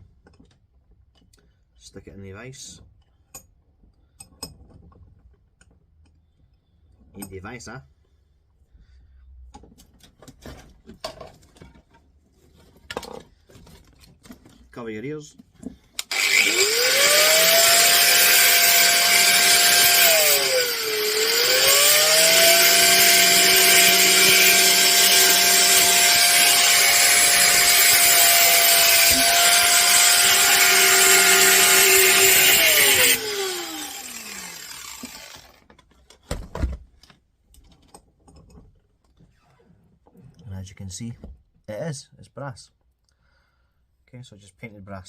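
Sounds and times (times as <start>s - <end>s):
motor winding down: 16.0s - 35.6s
power tool grinding metal: 16.0s - 35.6s.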